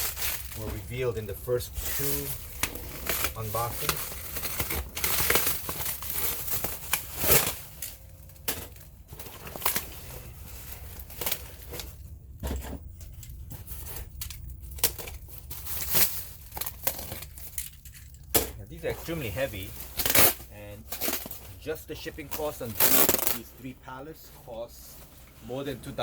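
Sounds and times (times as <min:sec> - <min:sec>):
packing material crinkling: 0:00.0 - 0:12.1, 0:13.0 - 0:23.8
short tearing sounds: 0:22.3 - 0:23.5.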